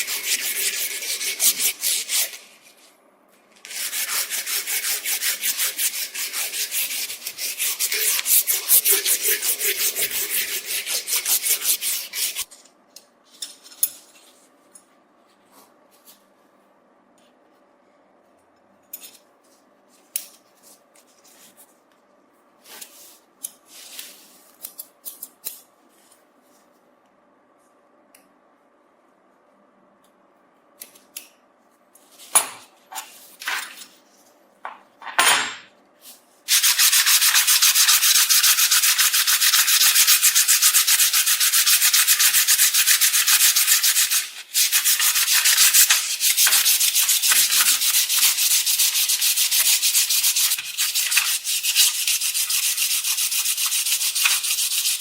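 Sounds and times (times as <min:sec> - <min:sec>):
sanding metal hiss: 0:03.8 - 0:12.4, 0:36.5 - 0:55.0.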